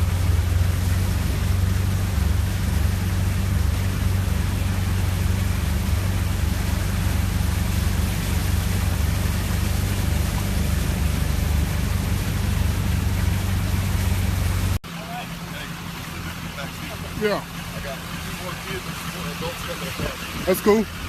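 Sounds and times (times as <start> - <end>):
loud hiss of water spray: 0.0 - 14.8
low vehicle rumble: 0.0 - 21.0.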